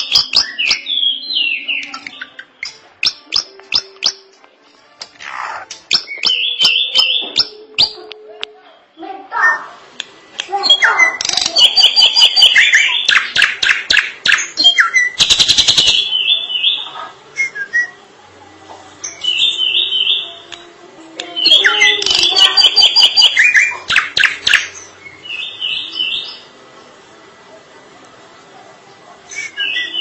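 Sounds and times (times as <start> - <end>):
bird whistling and chattering: 0.0 - 4.2, 5.2 - 8.0, 10.6 - 18.0, 21.4 - 26.5, 29.3 - 30.0.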